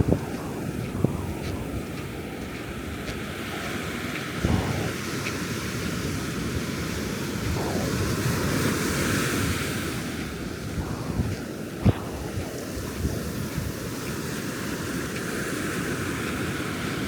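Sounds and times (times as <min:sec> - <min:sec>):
ocean surf breaking: 0:00.0 - 0:17.0
wind on microphone: 0:00.0 - 0:17.0.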